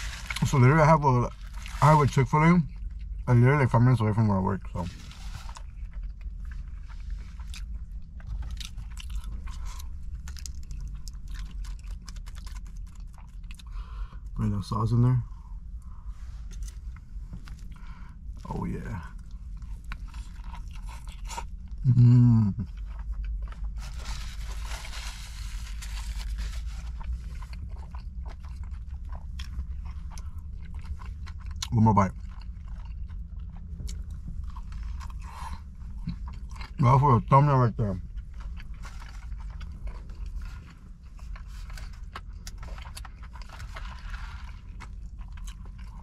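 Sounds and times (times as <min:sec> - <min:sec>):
steady low hum: 0:00.0 - 0:46.0
crunchy chewing: 0:04.6 - 0:14.0, 0:17.4 - 0:36.8, 0:38.0 - 0:46.0.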